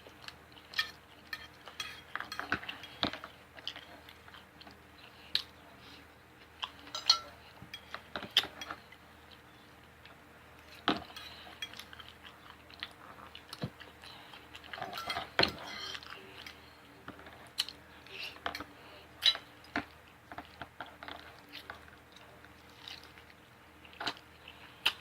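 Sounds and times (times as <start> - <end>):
cutlery clinking on dishes: 0.7 - 3.2, 6.9 - 8.8, 14.8 - 16.6.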